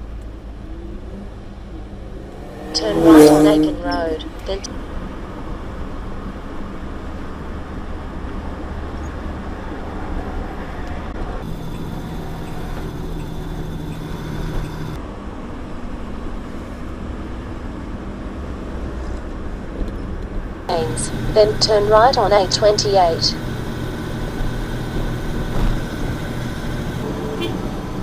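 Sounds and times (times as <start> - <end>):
road noise: 0.0 - 28.0
truck engine rumble: 1.0 - 4.7, 11.2 - 15.0, 20.7 - 28.0
steady hum: 1.4 - 4.7, 11.4 - 15.0, 20.7 - 28.0.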